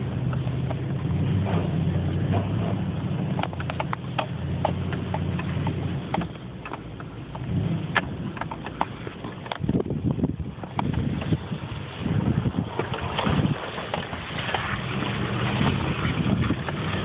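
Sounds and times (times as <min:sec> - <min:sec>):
pickup truck engine running: 0:00.0 - 0:17.0
sharp clicks and knocks: 0:02.3 - 0:10.0.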